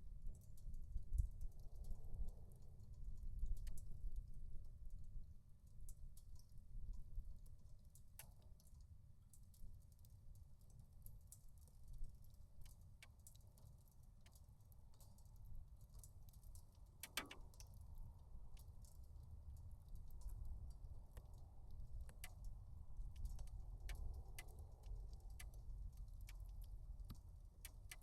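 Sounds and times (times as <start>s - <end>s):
wood fire crackling: 13.0s - 28.0s
faint low rumble: 14.9s - 28.0s.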